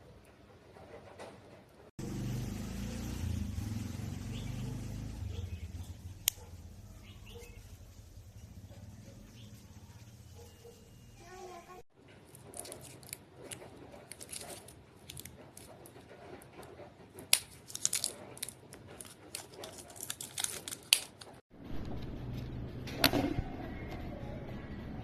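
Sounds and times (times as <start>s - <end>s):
small hard objects clicking: 17.2s - 21.4s.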